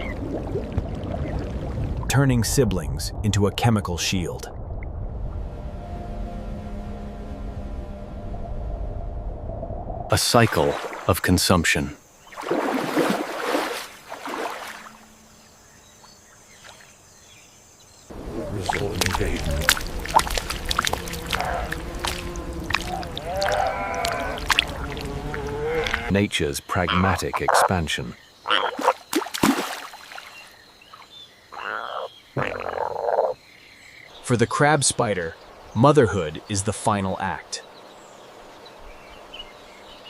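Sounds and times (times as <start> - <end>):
water sloshing: 12.2 - 17.0, 18.1 - 26.1, 28.7 - 31.1
frog buzzy trills: 18.6 - 26.1, 28.4 - 29.2, 31.5 - 33.4.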